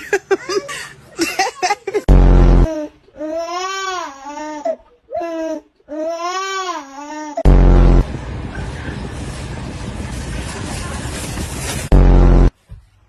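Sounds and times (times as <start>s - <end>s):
loud low thump: 2.1s - 2.7s, 7.5s - 10.4s, 11.4s - 12.5s
baby crying: 2.6s - 7.4s.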